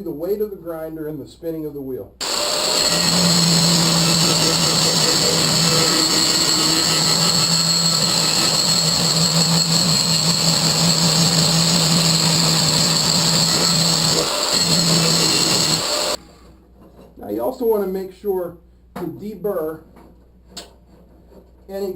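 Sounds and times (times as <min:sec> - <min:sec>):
angle grinder grinding steel: 0:02.2 - 0:16.2.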